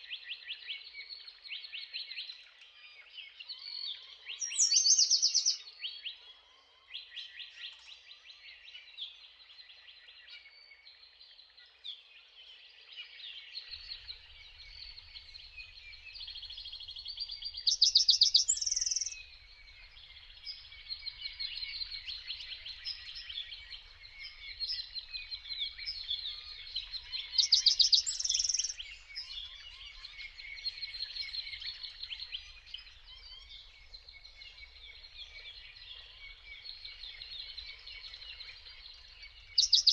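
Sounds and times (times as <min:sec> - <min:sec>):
songbirds chirping: 0:00.0 - 0:39.9
rapid bird trills: 0:14.0 - 0:31.5.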